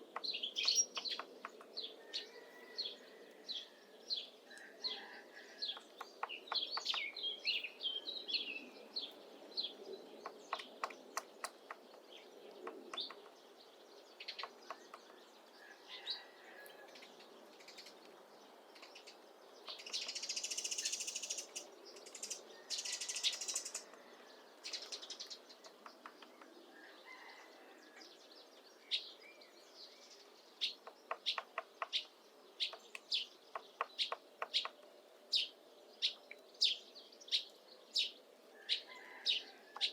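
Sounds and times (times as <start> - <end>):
small birds chirping: 0.0 - 39.9
woodpecker tapping on wood: 0.1 - 1.8, 5.7 - 7.2, 10.2 - 13.4, 14.3 - 15.2, 25.6 - 26.5, 30.8 - 32.1, 32.7 - 34.8.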